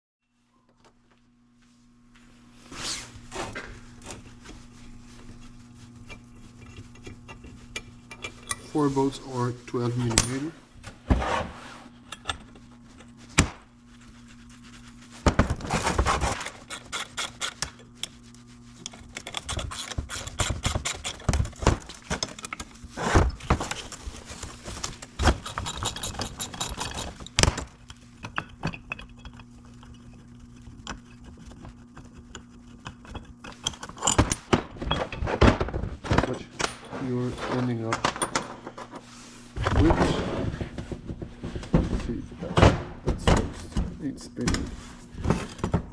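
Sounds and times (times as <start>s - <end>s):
metal tools clinking and knocking: 36.2s - 38.9s.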